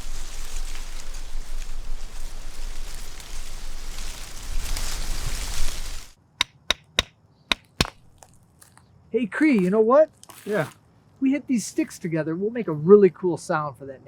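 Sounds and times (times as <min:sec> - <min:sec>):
dry leaves crackling underfoot: 0:00.0 - 0:06.2
wooden sticks clacking: 0:06.4 - 0:08.3.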